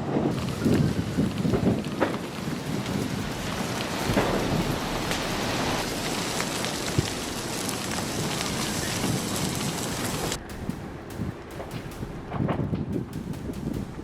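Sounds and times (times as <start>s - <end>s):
heavy rain: 0.0s - 14.0s
sharp crack: 0.0s - 14.0s
small cracks: 0.3s - 10.4s
low rumble: 0.6s - 14.0s.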